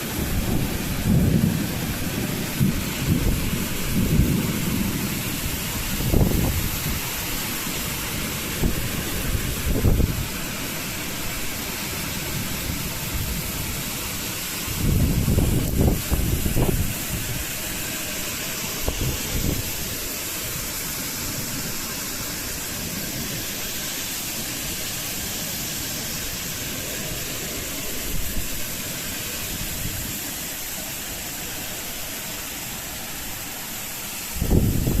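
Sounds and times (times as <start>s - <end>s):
wind gusts buffeting microphone: 0.0s - 17.8s, 18.8s - 20.1s, 34.2s - 35.0s
storm wind and rain rushing: 0.0s - 35.0s.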